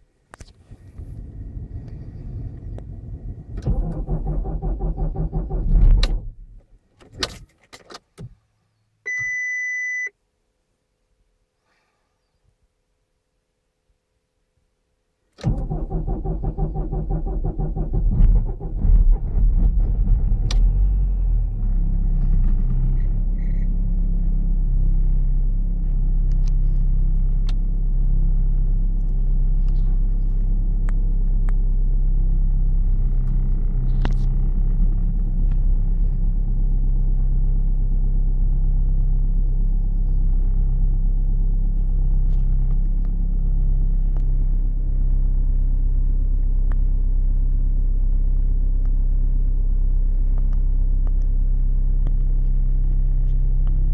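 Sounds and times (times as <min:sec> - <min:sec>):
diesel engine starting and idling: 0:00.5 - 0:06.7, 0:15.4 - 0:50.1.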